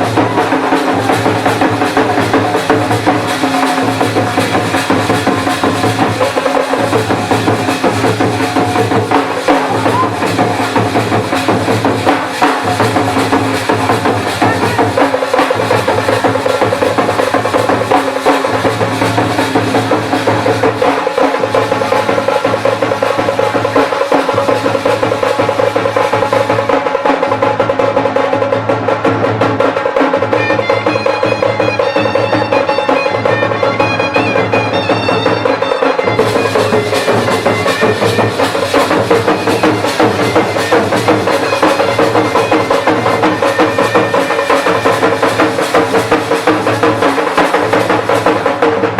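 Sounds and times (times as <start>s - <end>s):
cymbals: 0.0s - 48.9s
reed pipe melody: 30.4s - 46.0s.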